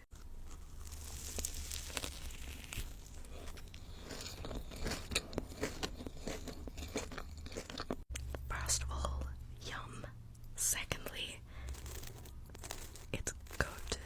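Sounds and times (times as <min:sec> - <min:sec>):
crunchy chewing and biting: 0:00.1 - 0:08.4.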